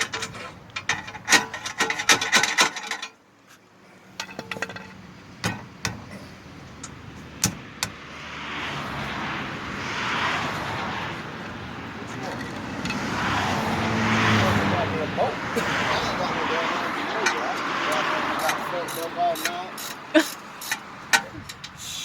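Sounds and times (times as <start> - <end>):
metallic clinks and knocks: 0.0 - 3.2, 4.2 - 6.1, 18.4 - 21.8
passing traffic: 0.0 - 22.0
ratchet clicking: 18.0 - 22.0.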